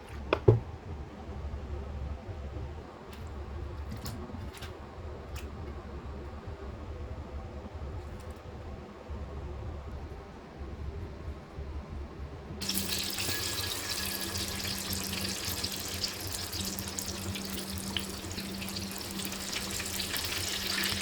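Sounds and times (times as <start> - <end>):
low steady hum: 10.8 - 21.0
chicken frying in hot oil: 12.6 - 21.0.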